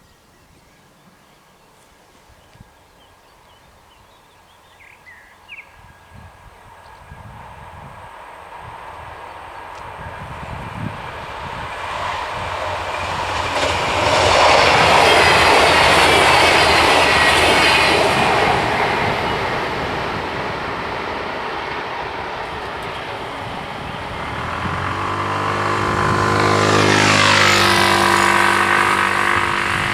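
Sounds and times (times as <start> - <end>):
train passing: 5.0 - 29.9
road vehicle engine passing: 7.3 - 29.9.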